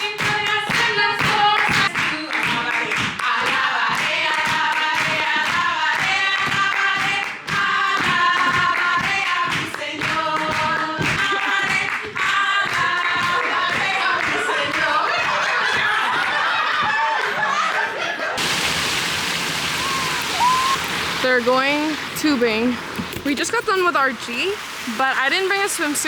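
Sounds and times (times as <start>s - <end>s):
group singing: 0.0s - 17.6s
clapping beat: 0.0s - 18.0s.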